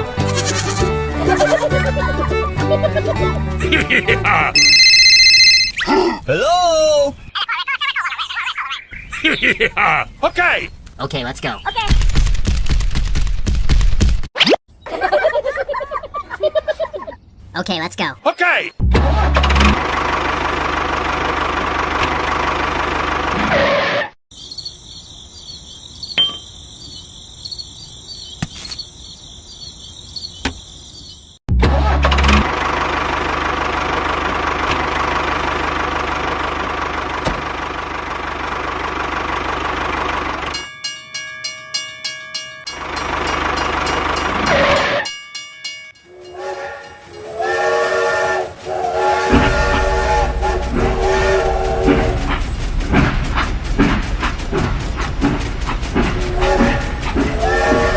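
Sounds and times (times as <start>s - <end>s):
quick rhythmic ticks: 51.6s - 57.4s.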